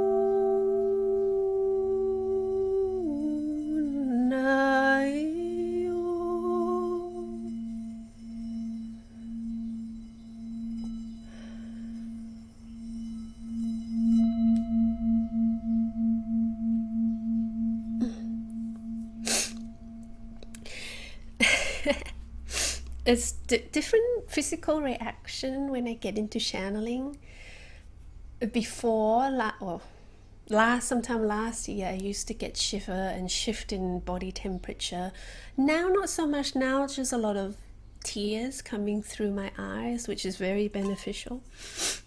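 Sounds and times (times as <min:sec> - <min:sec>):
person humming: 0:00.0 - 0:08.7, 0:17.8 - 0:22.1
singing bowl ringing: 0:00.0 - 0:22.3.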